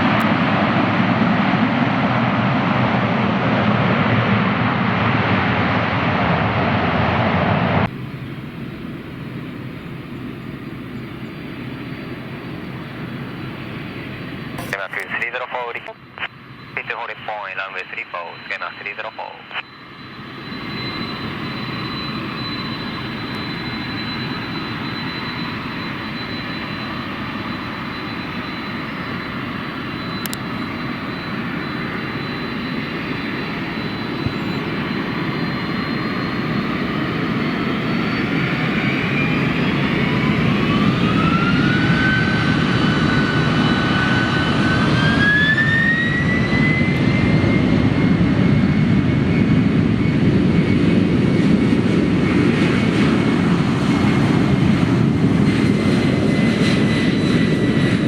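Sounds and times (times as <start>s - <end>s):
jet engines running: 0.0s - 58.0s
high engine whine rising in pitch: 18.0s - 58.0s.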